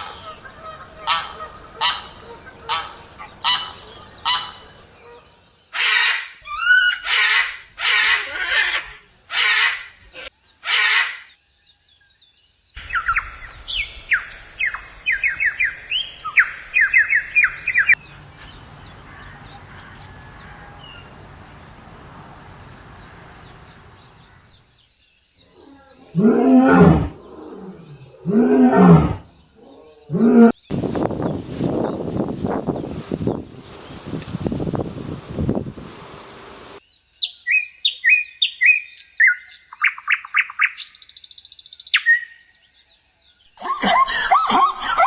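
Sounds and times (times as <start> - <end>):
geese honking: 0.0 - 5.2, 17.4 - 24.5
bird chirping: 0.0 - 5.8, 11.2 - 43.7.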